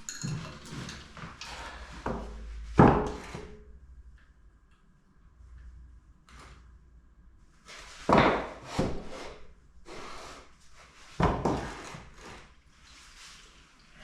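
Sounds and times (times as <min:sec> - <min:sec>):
metal engine parts knocking: 0:00.0 - 0:01.5
metal parts scraping: 0:00.0 - 0:02.1.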